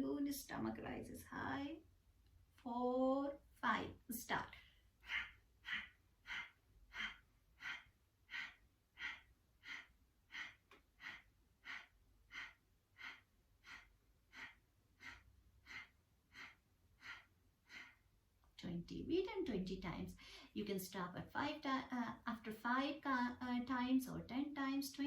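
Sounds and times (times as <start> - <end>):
quiet inhalations: 4.6 - 18.1, 20.1 - 20.6.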